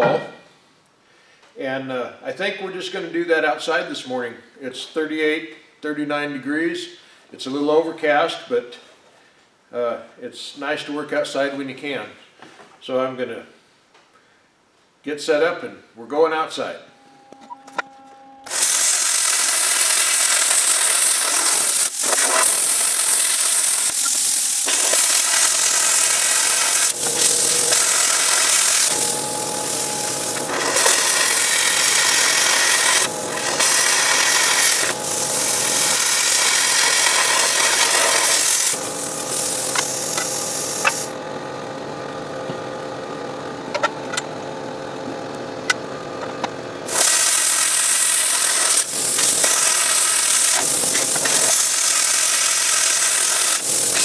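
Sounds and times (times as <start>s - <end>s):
plasma cutter hissing: 18.5s - 41.2s, 46.9s - 54.0s.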